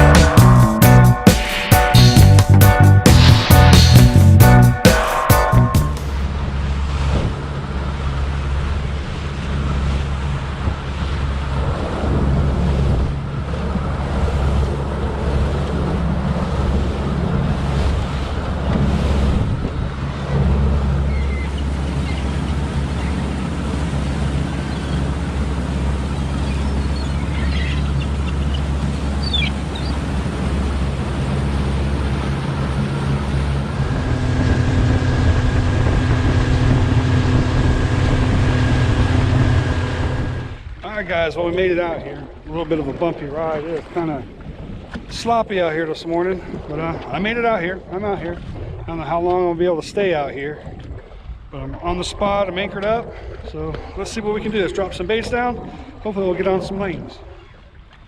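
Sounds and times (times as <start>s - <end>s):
boat engine running: 0.0s - 58.0s
water rushing past hull: 0.0s - 58.0s
wind on microphone: 5.6s - 8.0s, 8.6s - 40.8s, 41.4s - 58.0s.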